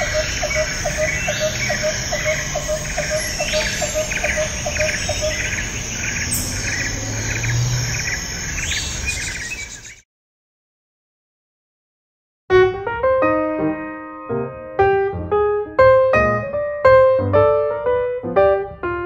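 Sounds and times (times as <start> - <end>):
insects chirping: 0.0 - 10.0.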